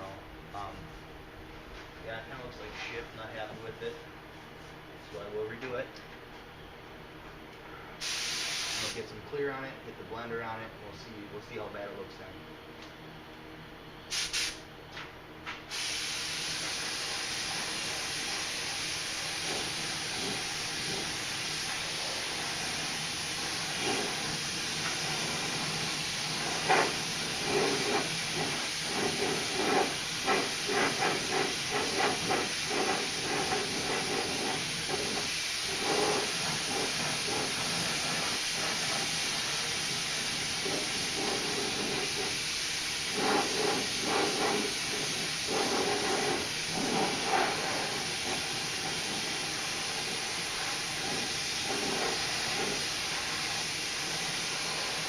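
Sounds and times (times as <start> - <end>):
steady air hiss: 7.8 - 9.3, 14.1 - 14.7, 15.6 - 55.0
paint spray gun spraying: 8.0 - 9.0, 14.1 - 14.6, 15.7 - 55.0.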